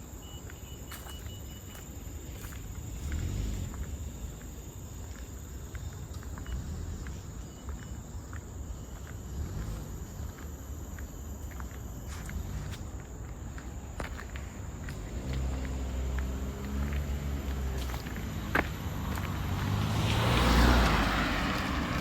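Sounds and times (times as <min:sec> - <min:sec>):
higher insect tone: 0:00.0 - 0:21.5
light footsteps on a trail: 0:00.1 - 0:22.0.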